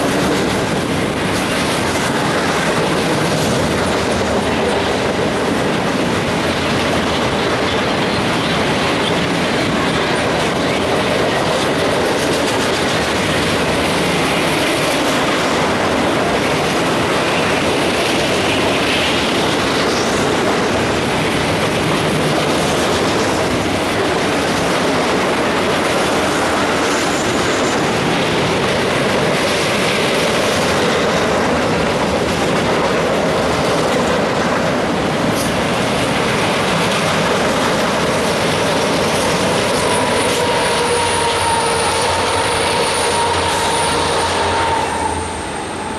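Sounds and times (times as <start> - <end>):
freight train wheels clickety-clack: 0.0 - 45.9
locomotive high whine: 13.0 - 45.9.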